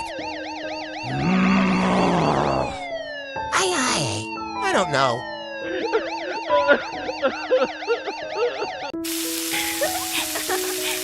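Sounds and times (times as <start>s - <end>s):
police siren wailing: 0.0s - 9.0s
soft background music: 0.0s - 11.0s
steady hiss: 9.0s - 11.0s.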